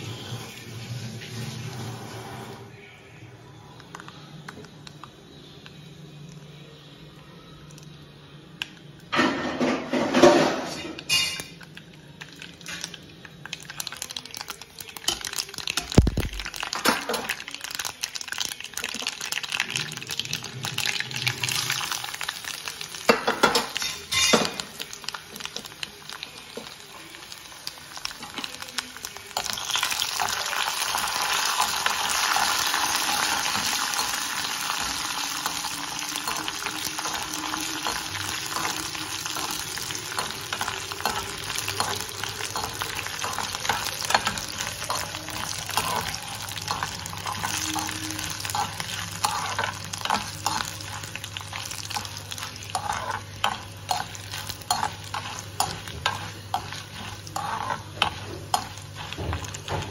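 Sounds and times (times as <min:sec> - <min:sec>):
oil sizzling: 0:00.0 - 0:02.6, 0:08.8 - 0:59.9
utensils clattering: 0:09.1 - 0:11.6, 0:23.1 - 0:24.7
ladle scraping pan: 0:52.6 - 0:59.8.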